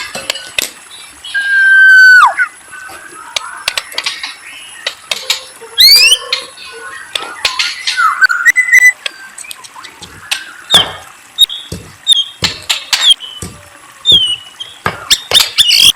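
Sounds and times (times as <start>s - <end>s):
songbird singing: 0.0s - 15.9s.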